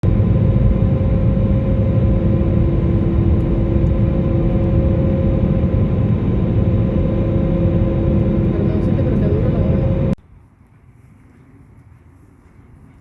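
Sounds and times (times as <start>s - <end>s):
motor rumbling and humming: 0.0s - 10.2s.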